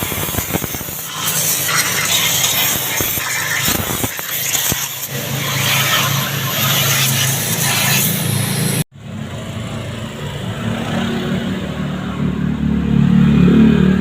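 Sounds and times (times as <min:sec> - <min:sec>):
hiss: 0:00.0 - 0:08.8.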